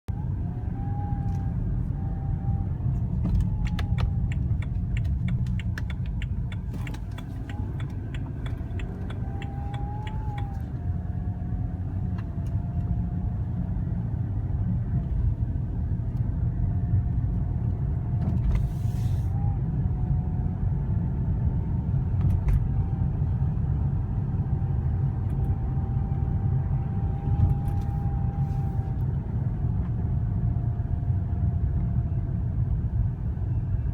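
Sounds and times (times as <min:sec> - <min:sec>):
low rumble of running car: 0:00.0 - 0:33.9
thin steady engine whine: 0:00.1 - 0:33.9
quick ticks: 0:03.7 - 0:10.7.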